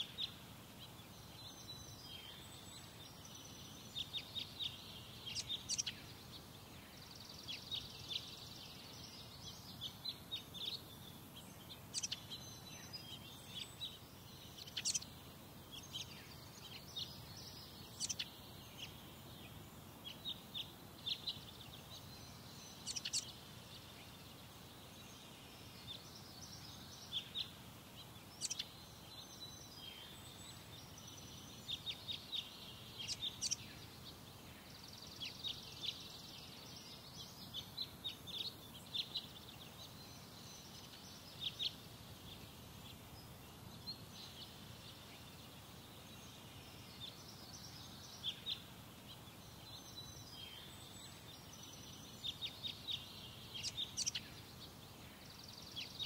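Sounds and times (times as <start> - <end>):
birds chirping: 0.0 - 56.0
bird trill: 4.0 - 6.1, 11.8 - 15.1, 22.0 - 23.3, 28.3 - 30.3.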